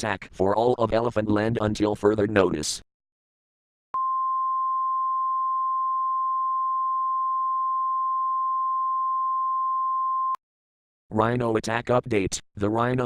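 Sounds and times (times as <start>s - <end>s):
steady electronic beep: 4.0s - 10.4s.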